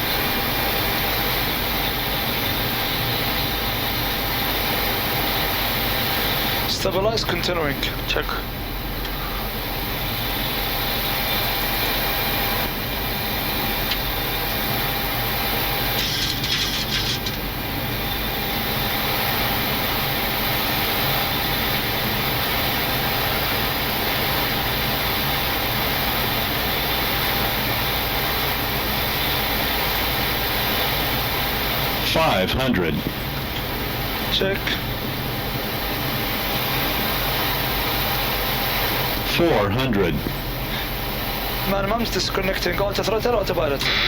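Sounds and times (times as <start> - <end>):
aircraft engine noise: 0.0 - 44.0
higher hiss: 41.8 - 44.0.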